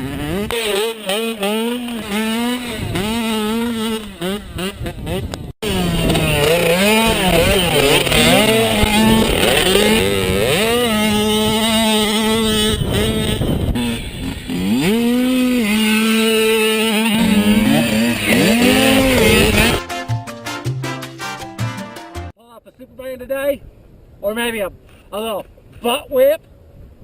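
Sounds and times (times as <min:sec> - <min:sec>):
dirt bike engines revving: 0:00.0 - 0:19.8.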